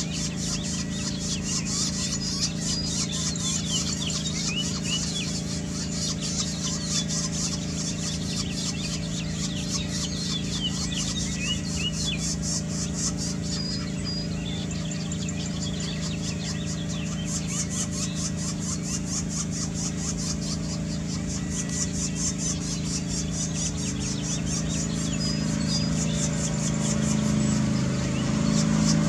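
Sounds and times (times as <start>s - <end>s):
nestlings chattering and chirping: 0.0s - 29.0s
steady low hum: 0.0s - 29.0s.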